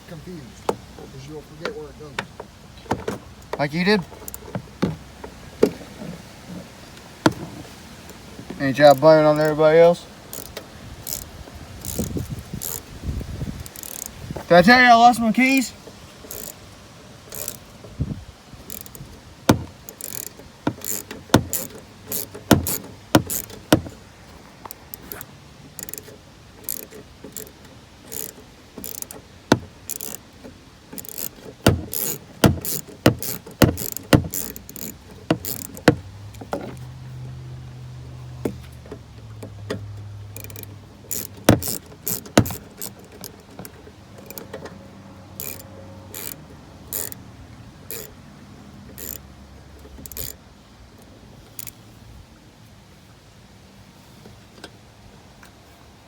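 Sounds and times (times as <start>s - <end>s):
hand tools clicking and tapping: 0.6s - 5.9s, 7.2s - 9.6s, 10.3s - 12.9s, 13.5s - 14.5s, 15.8s - 16.6s, 17.3s - 18.0s, 18.6s - 36.9s, 38.4s - 47.2s, 47.9s - 48.2s, 48.9s - 49.2s, 49.8s - 50.4s.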